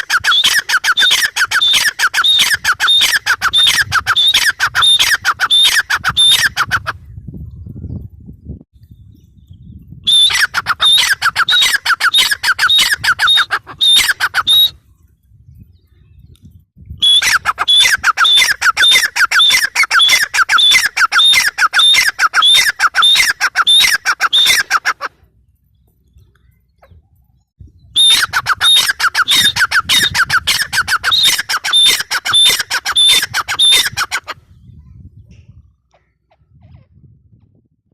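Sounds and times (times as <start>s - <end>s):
francolin calling: 10.1s - 14.7s, 17.0s - 24.9s, 28.0s - 34.3s.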